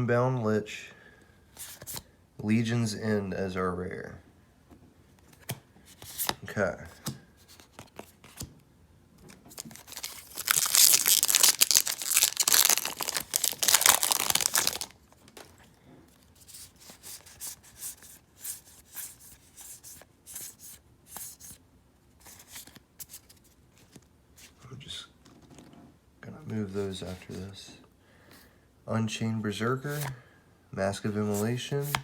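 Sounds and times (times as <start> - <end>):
cards clicking and rustling: 7.0 - 8.5, 9.2 - 15.6, 29.9 - 30.2, 31.3 - 32.0
foil wrapper tearing and crinkling: 9.5 - 15.0.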